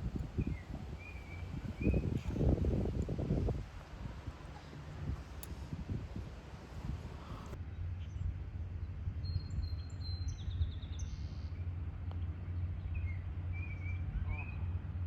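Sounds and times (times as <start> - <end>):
high bird calls and trills: 0.0 - 2.8
birds chirping: 0.0 - 3.3
low outdoor rumble: 0.0 - 15.0.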